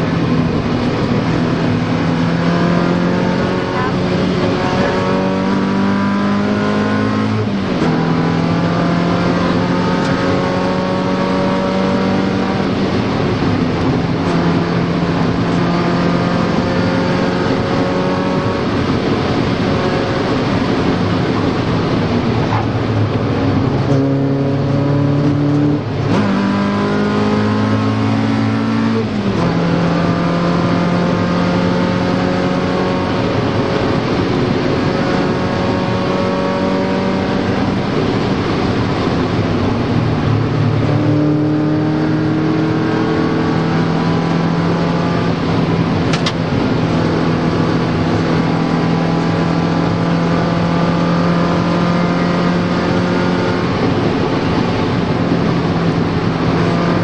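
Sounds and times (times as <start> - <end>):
car engine accelerating: 0.0 - 57.0
tyre and road noise: 0.0 - 57.0.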